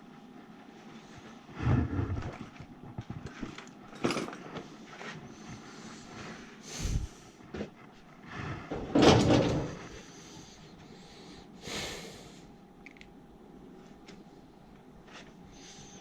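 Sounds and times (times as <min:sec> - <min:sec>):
tool handling knocks and rustles: 0:08.7 - 0:09.9.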